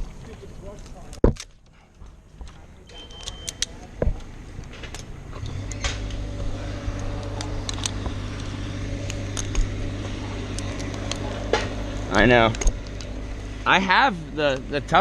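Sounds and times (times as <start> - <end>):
small engine idling: 5.2 - 15.0.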